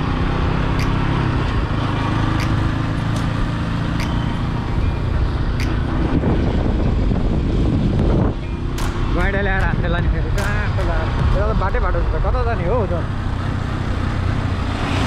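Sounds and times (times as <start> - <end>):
motorcycle engine running: 0.0 - 14.8
road and wind noise: 0.0 - 15.0
sharp clicks: 0.7 - 1.2, 2.3 - 3.4, 4.0 - 4.6, 8.7 - 11.0.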